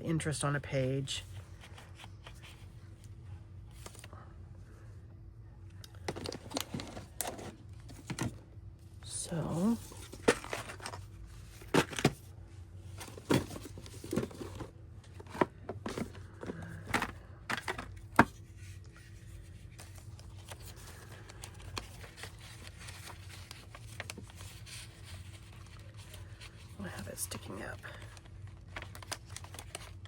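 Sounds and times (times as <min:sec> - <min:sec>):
paper rustling: 0:18.4 - 0:26.7.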